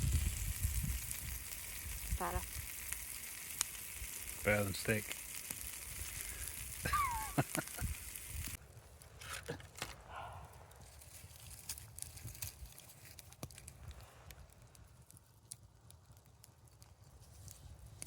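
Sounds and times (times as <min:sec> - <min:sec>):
food sizzling in a frying pan: 0:00.0 - 0:08.6
faint clicks and crackles: 0:00.2 - 0:18.0.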